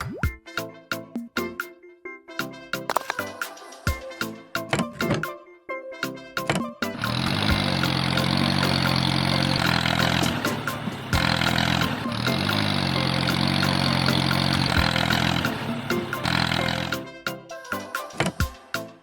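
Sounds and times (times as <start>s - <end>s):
motor running: 6.9s - 17.1s.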